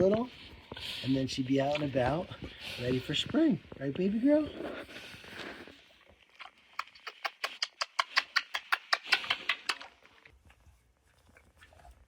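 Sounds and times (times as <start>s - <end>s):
pig making sharp clicking noises: 6.4s - 10.3s.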